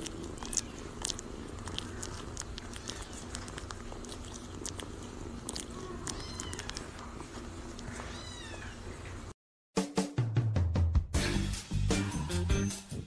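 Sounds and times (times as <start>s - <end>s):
kitten meowing: 0.3s - 1.0s, 2.0s - 3.5s, 5.6s - 7.1s, 7.9s - 8.9s
music with heavy beat: 9.8s - 13.0s.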